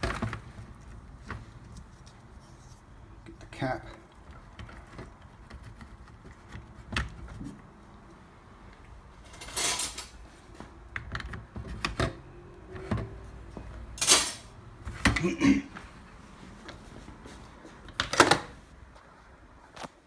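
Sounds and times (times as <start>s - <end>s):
scraping rustles: 9.2s - 10.7s.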